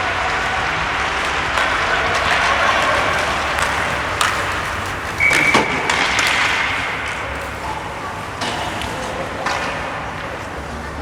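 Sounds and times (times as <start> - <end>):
crowd murmur: 0.0 - 11.0
hockey sticks and puck clacking: 0.2 - 11.0
high referee whistle: 5.2 - 6.8.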